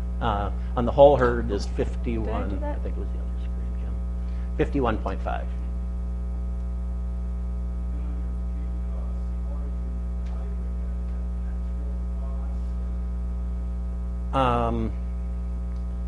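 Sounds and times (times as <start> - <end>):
electrical mains hum: 0.0 - 16.0
person speaking: 0.8 - 5.5.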